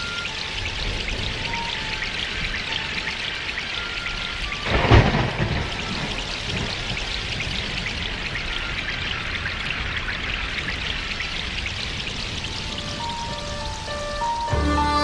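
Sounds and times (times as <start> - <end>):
steady rain: 0.0 - 15.0
thunder crack: 4.6 - 14.4.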